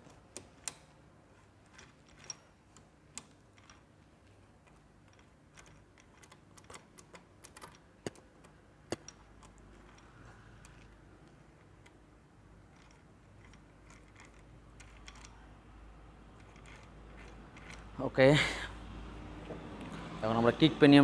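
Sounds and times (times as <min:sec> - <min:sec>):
metallic clicks and taps: 0:04.7 - 0:12.0.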